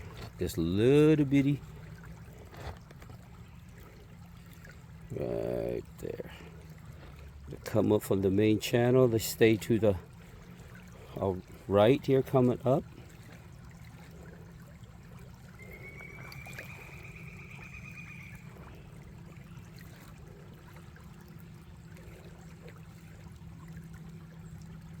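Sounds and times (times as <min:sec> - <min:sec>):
creek water trickling: 0:00.0 - 0:25.0
faint high whistle-like tone: 0:15.6 - 0:18.4.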